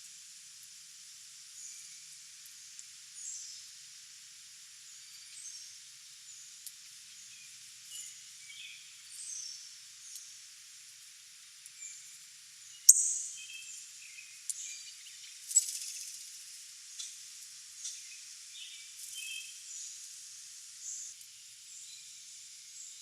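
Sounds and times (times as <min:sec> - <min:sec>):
faint hiss: 0:00.0 - 0:23.0
songbirds chirping: 0:06.3 - 0:10.3, 0:11.7 - 0:17.2, 0:17.8 - 0:20.0.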